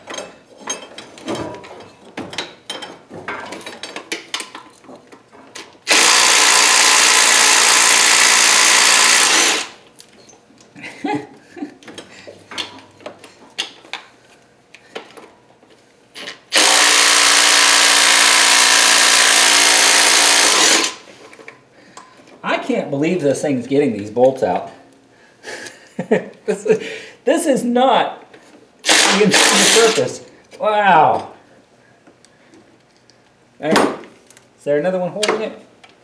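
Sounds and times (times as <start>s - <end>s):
clicks and knocks of tool handling: 0.0s - 5.8s
power tool running hard: 5.9s - 9.8s, 16.5s - 21.1s, 28.8s - 30.1s.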